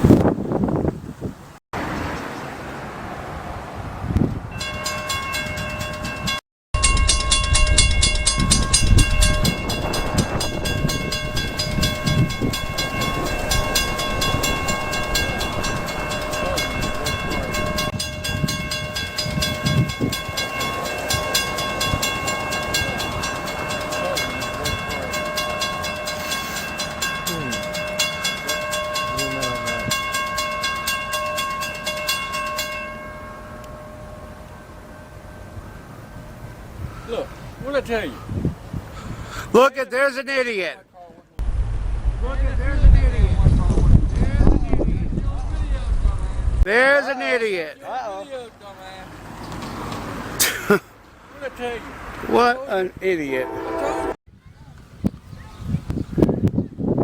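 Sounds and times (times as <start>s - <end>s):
crossing signal bell ringing: 4.5s - 36.8s, 53.2s - 54.2s
train wheels rumbling on rail: 4.8s - 32.5s.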